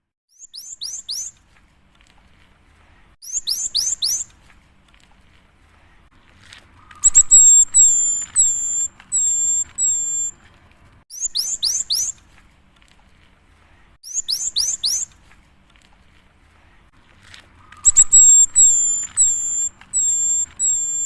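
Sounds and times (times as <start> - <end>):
bird singing whistled notes: 0.3 - 1.4, 3.2 - 4.3, 6.8 - 10.4, 11.1 - 12.2, 14.0 - 15.1, 17.6 - 21.0.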